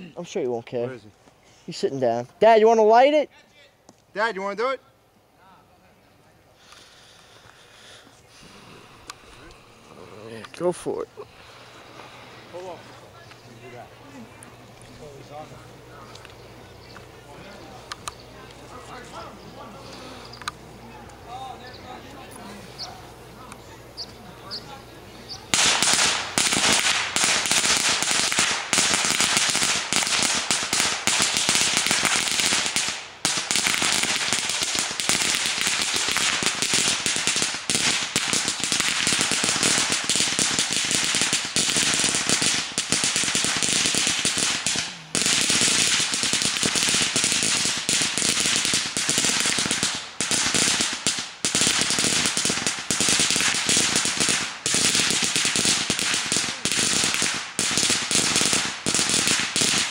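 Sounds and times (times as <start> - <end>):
firecrackers popping: 6.6 - 17.1, 25.4 - 59.9.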